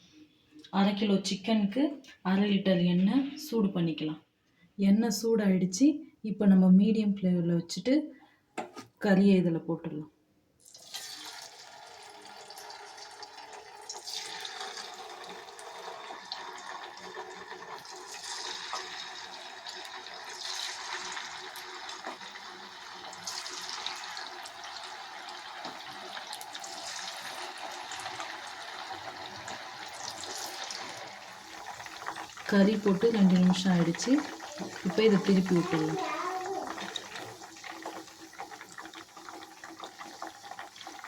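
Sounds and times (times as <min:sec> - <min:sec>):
chicken deep-frying in oil: 0:10.6 - 0:41.0.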